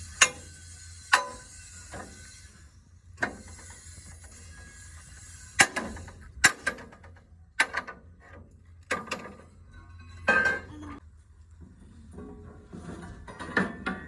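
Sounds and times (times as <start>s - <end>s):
hand tools striking steel: 0.0s - 2.3s.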